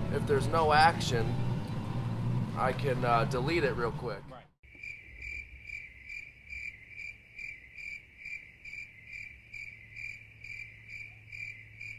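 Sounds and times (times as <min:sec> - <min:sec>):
crickets chirping: 0:04.6 - 0:11.9.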